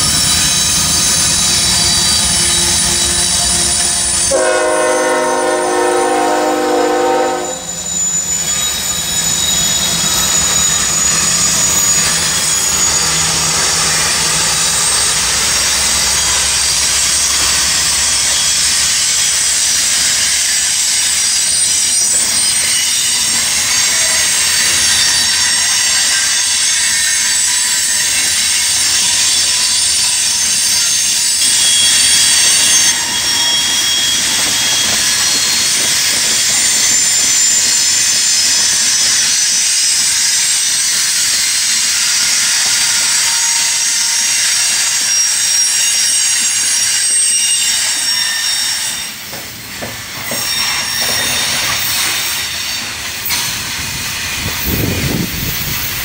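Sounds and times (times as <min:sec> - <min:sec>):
freight train rolling past: 0:00.0 - 0:56.0
wheels squealing on rails: 0:00.0 - 0:56.0.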